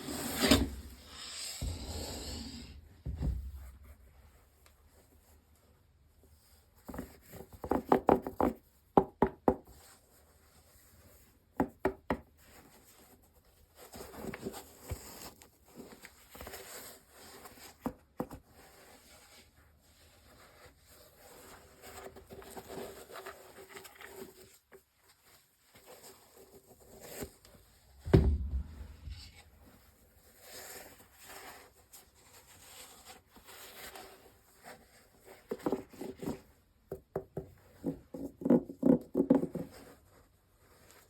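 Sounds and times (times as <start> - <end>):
knocks and taps on packaging: 7.5 - 9.7, 11.6 - 12.3.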